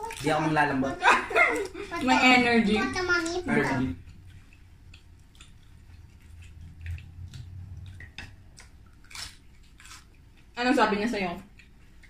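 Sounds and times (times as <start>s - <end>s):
chewing and mouth smacks: 0.0s - 0.6s, 3.1s - 10.6s, 11.4s - 12.0s
low steady hum: 0.0s - 12.0s.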